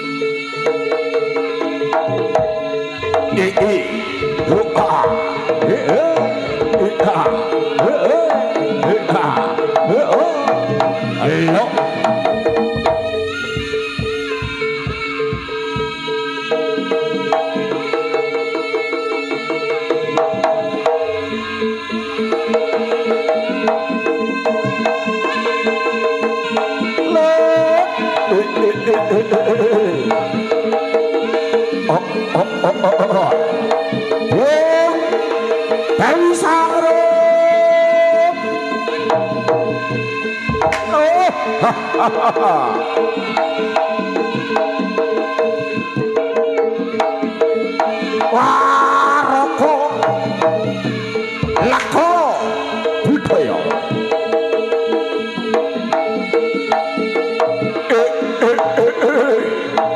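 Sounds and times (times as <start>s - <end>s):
wavering melody: 0.0s - 54.7s
hand drums: 0.0s - 59.9s
sustained ensemble tones: 1.4s - 16.7s
hand drum strokes: 1.8s - 16.2s, 39.0s - 54.4s.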